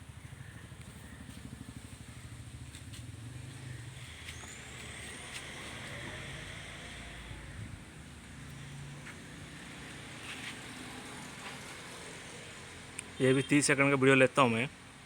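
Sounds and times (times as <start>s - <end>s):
low engine running: 0.0s - 10.0s.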